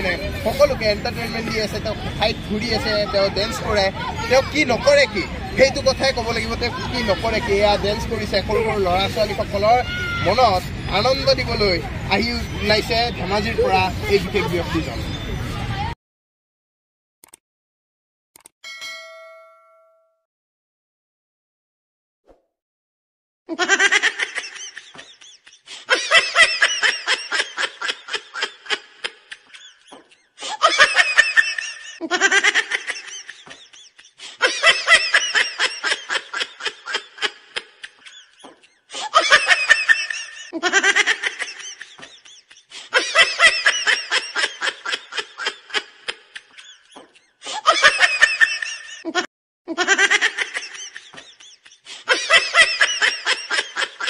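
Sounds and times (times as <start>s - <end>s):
rapid laughing: 23.5s - 54.0s.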